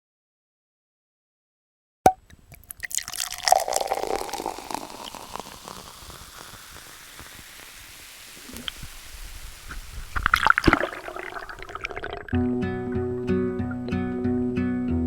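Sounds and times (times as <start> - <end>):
water gurgle: 2.5 - 12.5
water trickling: 2.5 - 13.0
water sloshing and dripping: 7.7 - 12.4.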